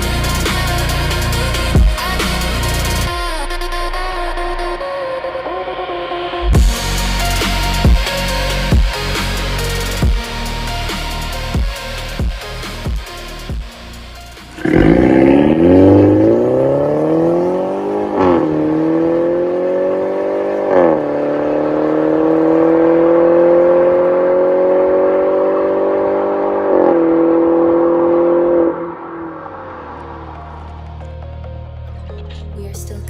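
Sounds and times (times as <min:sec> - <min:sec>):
car engine accelerating: 0:12.6 - 0:32.9.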